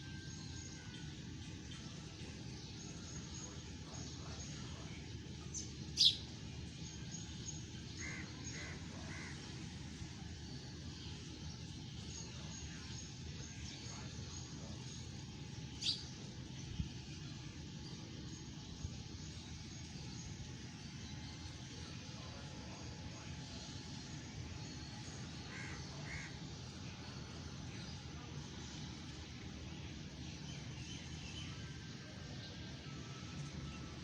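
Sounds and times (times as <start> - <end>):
bird calls: 5.6 - 6.2, 15.8 - 16.1.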